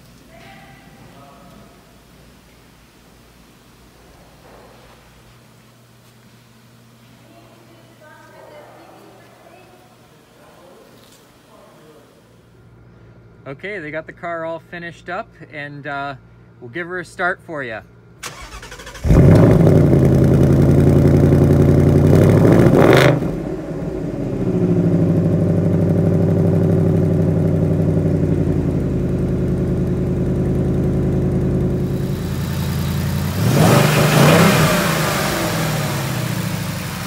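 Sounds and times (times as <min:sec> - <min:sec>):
car engine starting and idling: 0:18.2 - 0:37.0.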